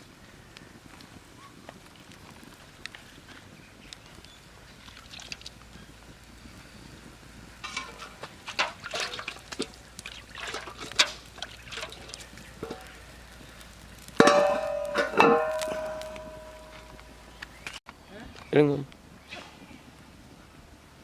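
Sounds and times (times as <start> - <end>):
liquid splashing in pot: 4.8 - 5.6, 7.6 - 13.0.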